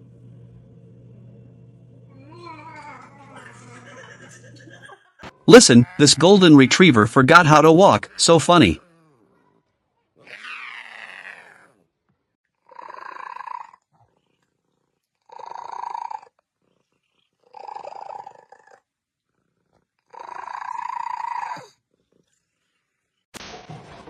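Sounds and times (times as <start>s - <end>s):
cat purring: 12.6s - 23.2s.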